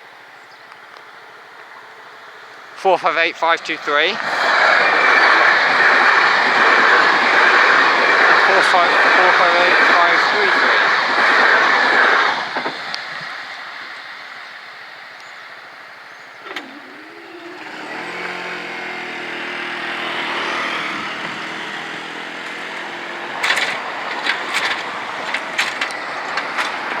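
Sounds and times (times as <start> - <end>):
car engine pulling away: 16.4 - 27.0.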